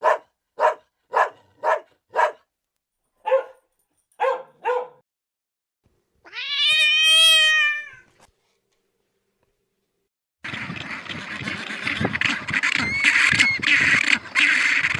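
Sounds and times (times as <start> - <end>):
long drawn-out animal call: 10.5 - 14.9
short animal calls: 11.4 - 14.9.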